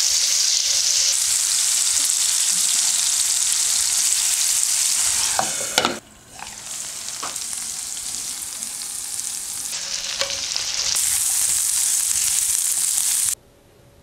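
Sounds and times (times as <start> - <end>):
chicken sizzling in oil: 0.0 - 13.4
spatula scraping pan: 4.9 - 6.8, 9.7 - 12.3.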